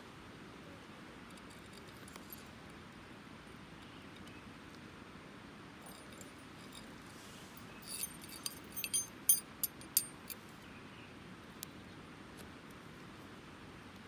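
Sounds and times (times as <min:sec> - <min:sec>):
steel striker clinking on flint: 0:05.8 - 0:06.9, 0:07.6 - 0:10.4.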